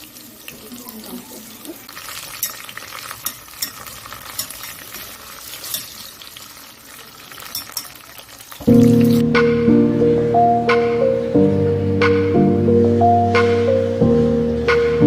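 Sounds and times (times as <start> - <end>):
shrimp sizzling in a frying pan: 1.7 - 9.2.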